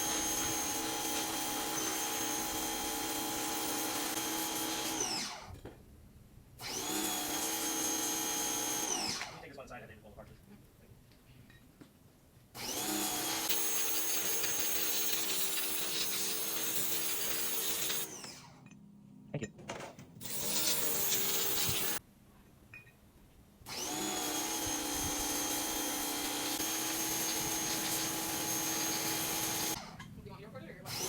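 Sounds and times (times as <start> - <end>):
power tool whining: 0.0 - 5.5, 6.6 - 9.4, 12.6 - 18.6, 20.2 - 22.0, 23.7 - 30.0.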